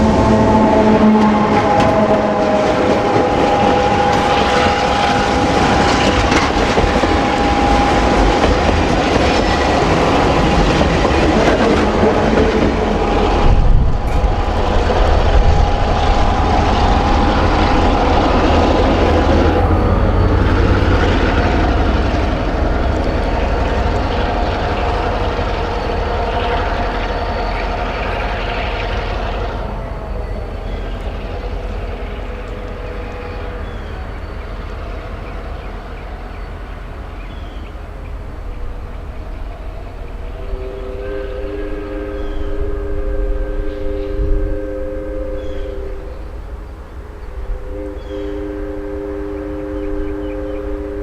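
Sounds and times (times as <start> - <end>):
steady high tones: 0.0 - 36.6
train jolt: 0.0 - 51.0
train rumbling on rails: 0.0 - 51.0.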